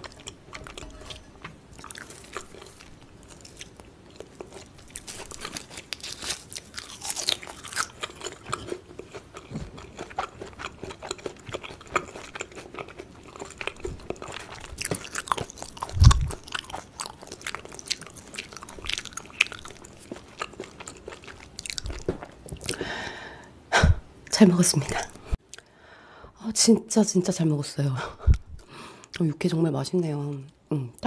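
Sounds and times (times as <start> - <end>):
person chewing crunchy food: 0.0 - 22.9.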